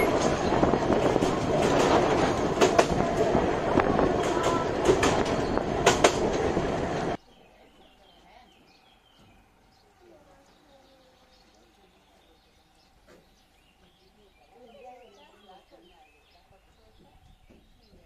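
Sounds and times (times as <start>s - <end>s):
train rumbling on track: 0.0s - 7.2s
wheels clacking over rail joints: 0.0s - 7.2s
faint birdsong: 7.0s - 18.0s.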